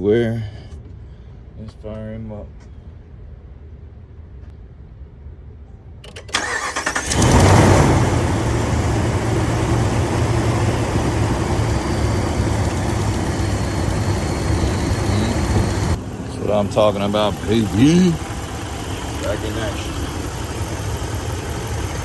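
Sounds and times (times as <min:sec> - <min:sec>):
truck engine starter cranking: 0:06.1 - 0:16.0
truck engine idling: 0:06.4 - 0:22.0.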